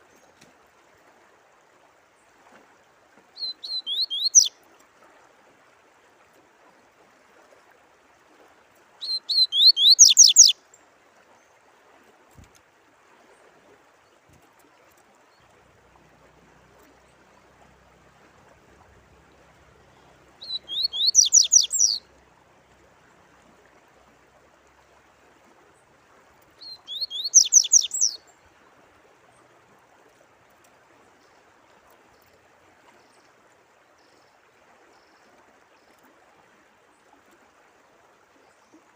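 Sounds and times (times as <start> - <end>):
running water: 0.0 - 38.9
songbird whistling phrases: 3.4 - 4.5, 9.0 - 10.6, 20.4 - 22.0, 26.6 - 28.2.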